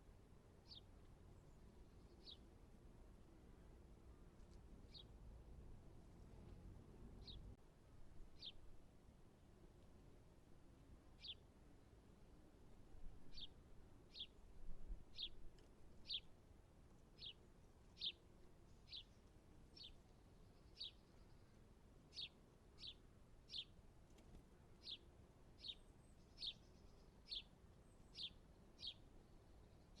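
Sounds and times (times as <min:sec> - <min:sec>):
small bird calling faintly: 0:00.6 - 0:02.6, 0:04.3 - 0:05.2, 0:08.3 - 0:08.7, 0:11.2 - 0:11.5, 0:15.1 - 0:16.3, 0:17.1 - 0:24.2, 0:24.8 - 0:30.0.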